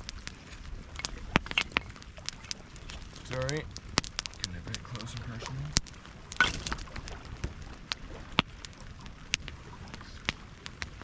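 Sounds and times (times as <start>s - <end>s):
campfire crackling and popping: 0.0s - 11.0s
rain hissing: 0.0s - 11.0s.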